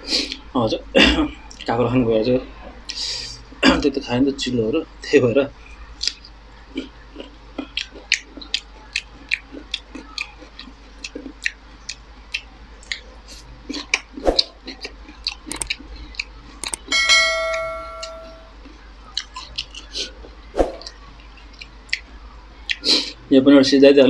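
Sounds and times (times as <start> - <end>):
wet chewing mouth clicks: 6.0 - 16.8, 19.1 - 20.2, 20.8 - 22.1
bright bell chime: 16.8 - 18.5.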